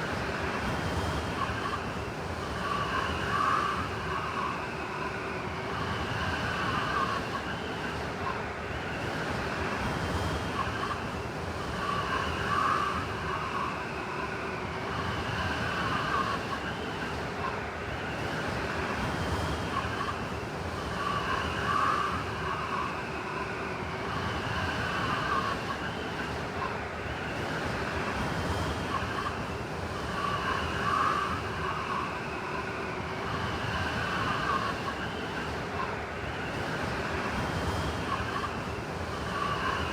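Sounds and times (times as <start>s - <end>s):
blizzard wind howling: 17.9s - 39.9s.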